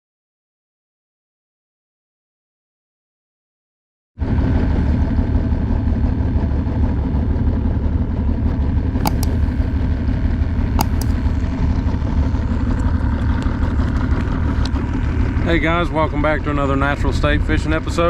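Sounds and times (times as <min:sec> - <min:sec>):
outboard motor idling: 0:04.3 - 0:18.0
sharp clicks: 0:09.0 - 0:09.7, 0:10.8 - 0:11.3.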